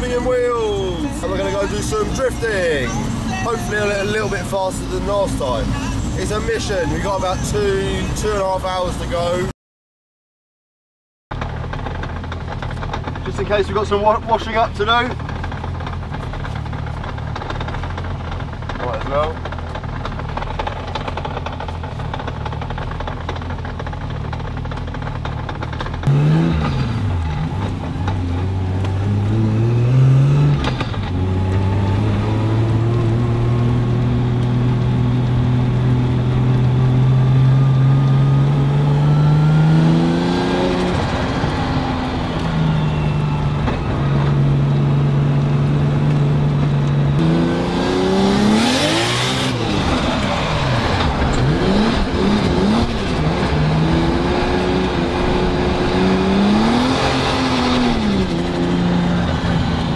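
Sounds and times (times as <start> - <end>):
car engine revving hard: 26.0 - 27.6, 28.4 - 42.6, 47.1 - 59.9.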